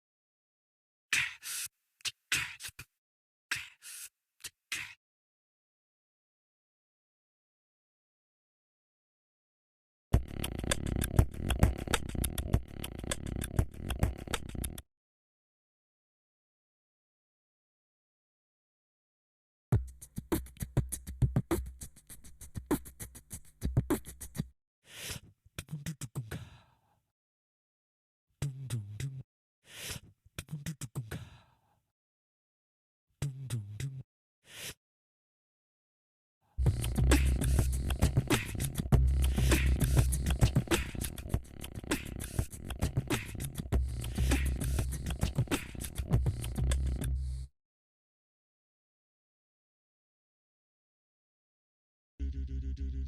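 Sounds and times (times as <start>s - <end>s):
beatboxing drum hits: 10.2s - 14.6s, 19.8s - 24.4s, 36.6s - 47.2s
low bass tone: 36.6s - 40.6s, 52.2s - 53.0s
heavy deep bass line: 36.6s - 47.4s, 52.2s - 53.0s.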